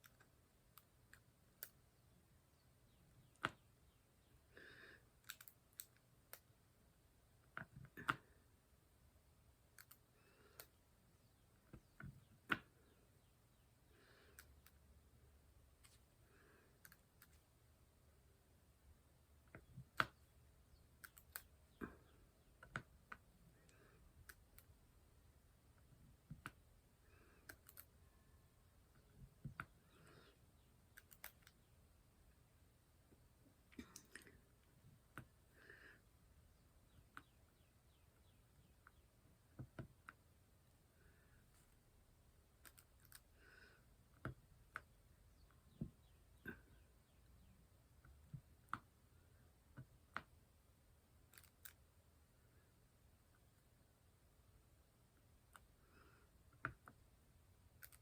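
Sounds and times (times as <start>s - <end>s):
small clicks and taps: 3.2s - 3.7s, 5.2s - 6.5s, 7.4s - 8.4s, 9.7s - 10.8s, 19.4s - 20.3s, 21.0s - 24.8s, 25.7s - 26.6s, 30.9s - 31.7s, 36.9s - 37.4s, 42.6s - 43.3s, 44.1s - 46.6s, 48.0s - 48.9s, 49.7s - 50.4s, 51.3s - 51.8s, 57.8s - 58.0s.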